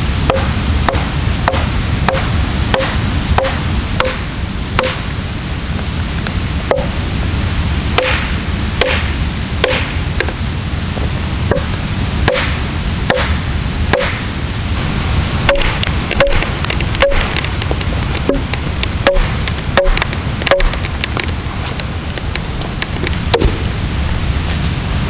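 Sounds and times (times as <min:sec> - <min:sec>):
low rushing noise: 0:00.0 - 0:25.0
axe chopping into log: 0:08.0 - 0:09.9, 0:14.0 - 0:14.2.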